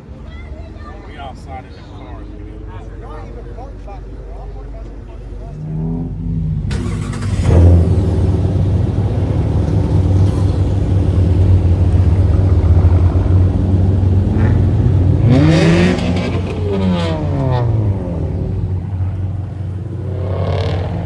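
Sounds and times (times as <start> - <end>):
car engine revving: 5.3 - 21.0.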